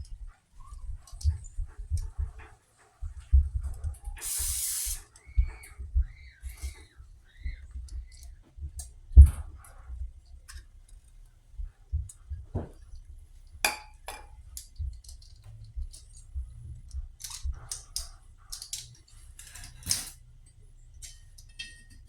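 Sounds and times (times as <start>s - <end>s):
metal tools clinking on workbench: 18.6s - 20.2s, 21.0s - 22.0s.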